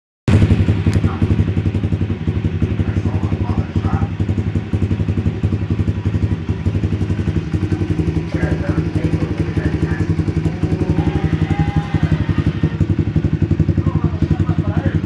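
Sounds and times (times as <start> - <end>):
motorbike engine running: 0.3 - 15.0.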